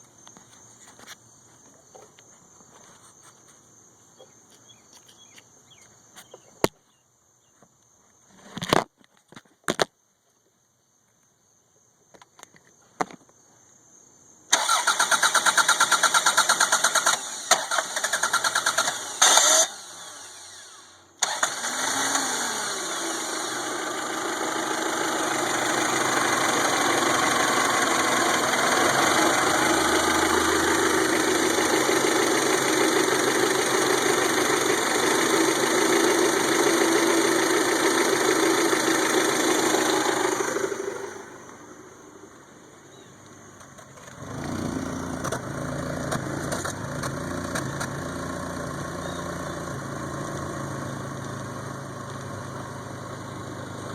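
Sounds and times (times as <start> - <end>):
car engine cranking and starting: 14.5 - 42.1, 43.2 - 53.9.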